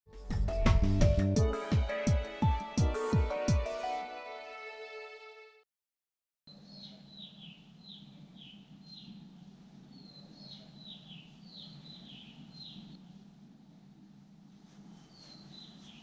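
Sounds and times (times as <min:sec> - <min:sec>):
small birds chirping: 0:06.5 - 0:09.3, 0:09.9 - 0:13.0, 0:15.0 - 0:16.0.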